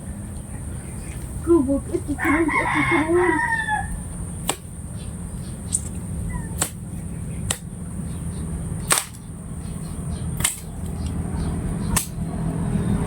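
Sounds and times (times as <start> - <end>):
sharp clicks: 5.7 - 6.0, 10.4 - 11.2.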